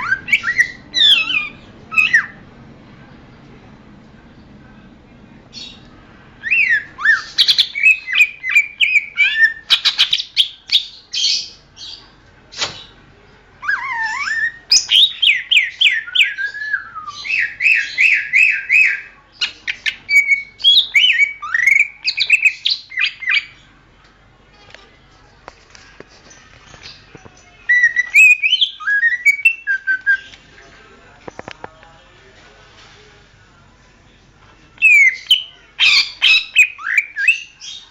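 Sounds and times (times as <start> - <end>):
bird singing whistled notes: 27.7 - 30.3.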